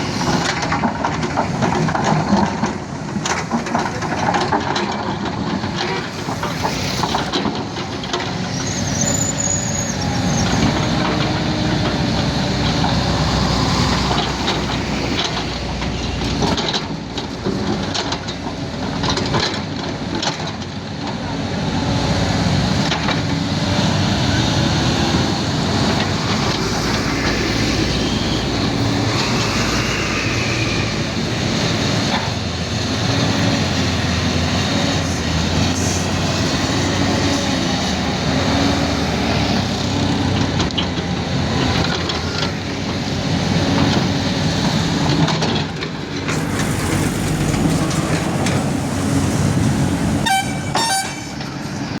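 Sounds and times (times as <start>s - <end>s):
diesel engine running: 21.7s - 52.0s.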